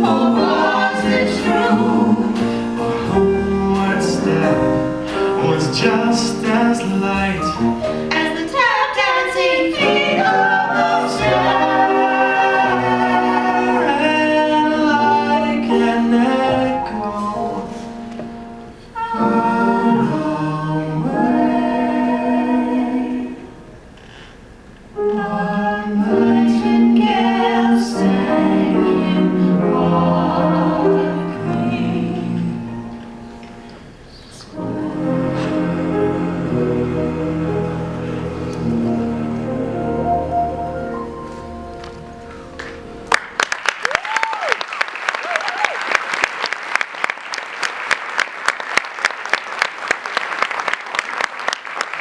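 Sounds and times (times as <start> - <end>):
voices singing a slow ballad: 0.0 - 23.9, 25.0 - 41.0
audience applauding: 42.6 - 52.0
close claps: 42.6 - 52.0.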